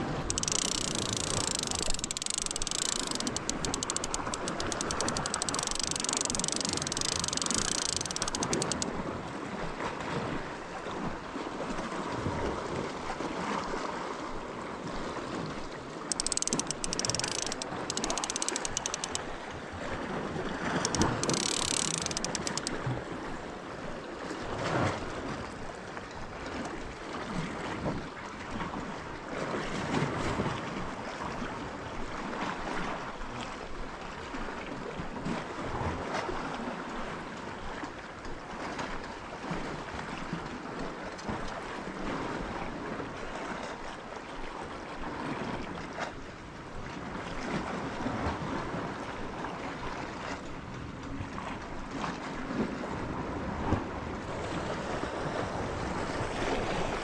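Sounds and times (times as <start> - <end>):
fast high-pitched clicking: 0.2 - 8.9, 16.1 - 19.3, 20.9 - 22.8
waves against rocky shore: 44.6 - 57.0.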